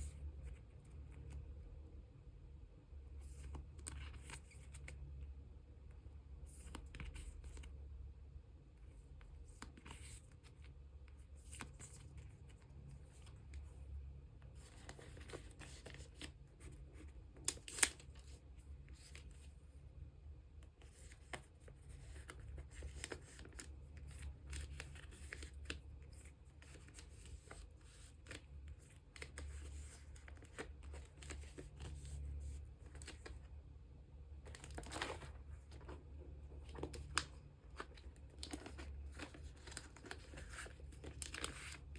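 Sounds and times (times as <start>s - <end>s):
low steady hum: 0.0s - 41.9s
cards sliding in plastic sleeves: 20.7s - 33.5s, 34.4s - 41.9s
plastic crinkle: 34.4s - 41.9s.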